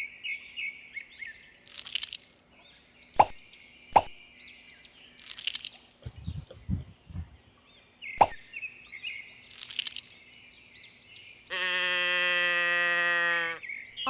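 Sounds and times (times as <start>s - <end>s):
loud bleating call: 11.5s - 13.7s.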